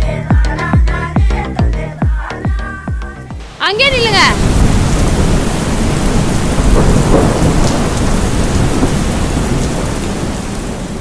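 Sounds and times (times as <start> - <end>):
heavy rain pouring: 3.4 - 11.0
low rumble of thunder: 4.1 - 11.0.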